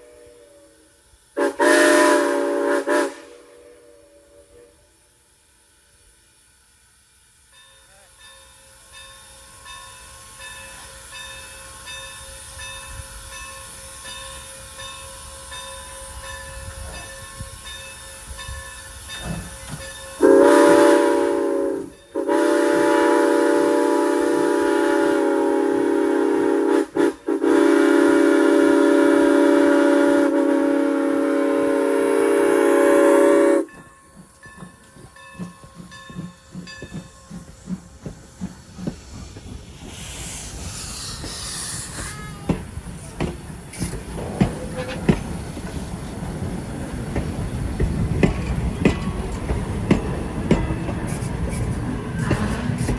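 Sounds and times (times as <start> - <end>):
steam whistle chime: 0.0 - 5.0, 7.5 - 37.5, 41.2 - 42.7
steam locomotive hissing: 0.0 - 52.9.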